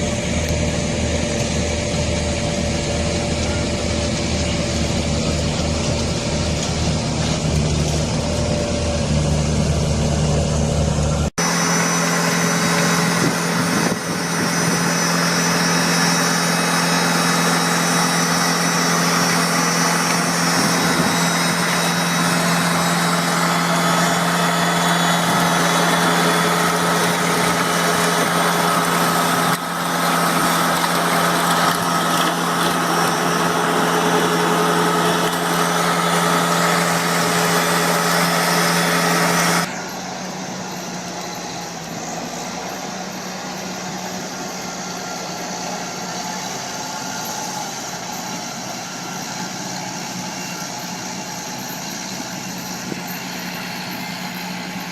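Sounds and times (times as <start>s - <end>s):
farm machinery engines running: 0.0s - 54.9s
quieter duller machine engine: 0.0s - 54.9s.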